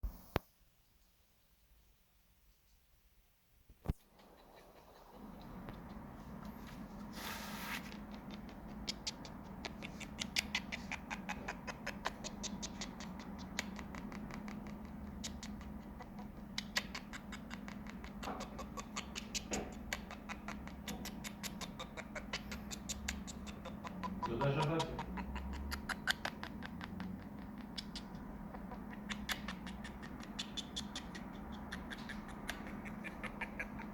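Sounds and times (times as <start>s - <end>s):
steady low hum: 3.9s - 33.9s.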